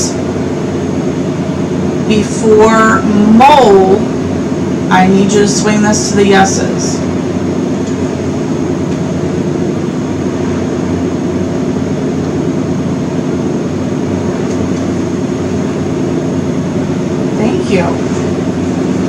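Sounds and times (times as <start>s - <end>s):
mechanical hum with rushing noise: 0.0s - 19.0s.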